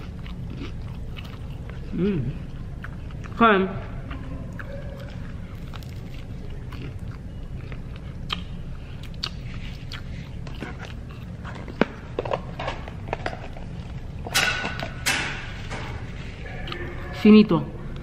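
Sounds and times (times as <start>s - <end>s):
person chewing crunchy snack: 0.0s - 3.4s, 4.0s - 14.2s.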